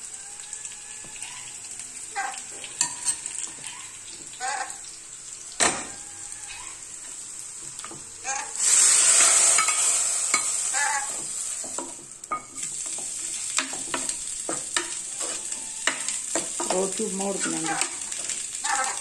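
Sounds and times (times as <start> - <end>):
oil sizzling in a pan: 0.0 - 19.0.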